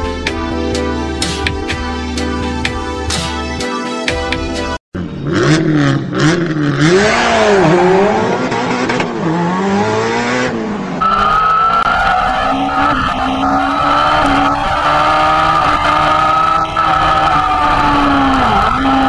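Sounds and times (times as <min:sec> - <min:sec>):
motorcycle engine revving: 0:05.0 - 0:10.8.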